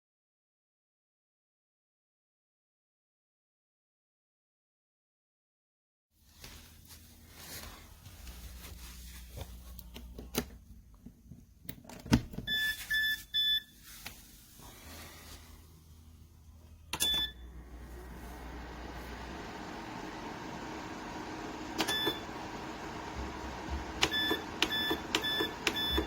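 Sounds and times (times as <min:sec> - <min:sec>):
short control panel beeps: 0:12.5 - 0:13.7, 0:17.0 - 0:17.4, 0:21.8 - 0:22.2, 0:24.0 - 0:26.0
heater fan blowing: 0:14.0 - 0:26.0
low hum: 0:14.3 - 0:24.6.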